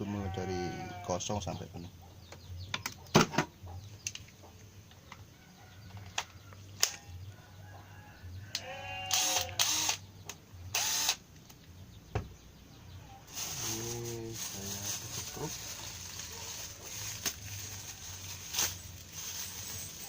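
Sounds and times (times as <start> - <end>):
rooster crowing: 0.0 - 1.1.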